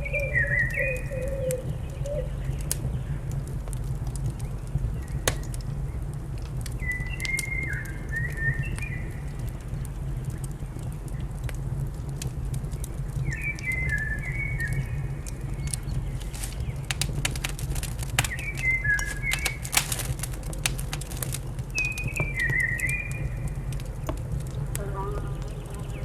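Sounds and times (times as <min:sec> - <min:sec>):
bird singing whistled notes: 0:00.0 - 0:02.4, 0:06.8 - 0:09.2, 0:13.3 - 0:16.8, 0:21.7 - 0:23.5
fireplace crackling and popping: 0:00.0 - 0:26.0.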